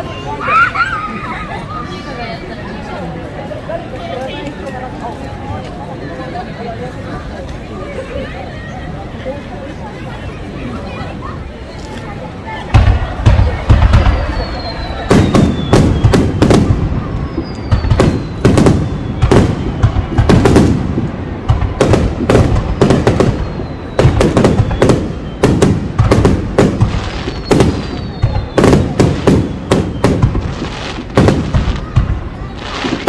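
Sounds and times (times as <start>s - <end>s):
fireworks booming and cracking: 12.6s - 33.0s
fireworks whistle falling: 14.0s - 20.4s, 26.8s - 31.0s.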